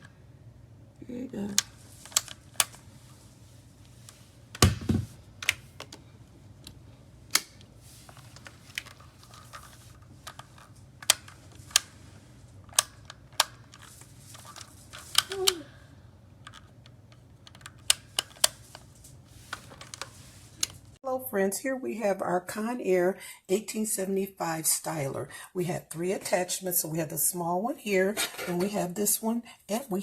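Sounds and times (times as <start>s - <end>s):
heavy thump: 4.6s - 5.2s
knocks: 4.6s - 5.2s.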